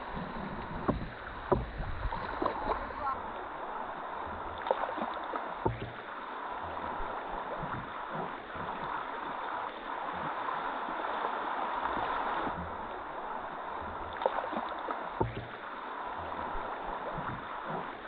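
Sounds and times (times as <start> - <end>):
rushing river water: 0.0 - 18.0
sharp knocks: 0.8 - 2.6, 5.6 - 6.0, 15.2 - 15.5.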